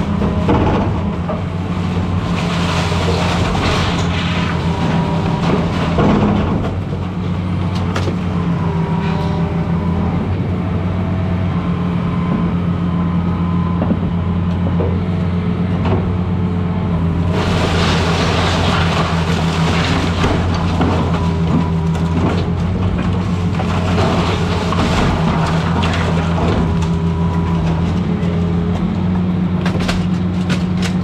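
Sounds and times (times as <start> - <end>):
debris knocking and cracking: 0.0 - 9.7, 17.0 - 31.0
excavator diesel engine running: 0.0 - 31.0
rough clattering: 17.3 - 28.4.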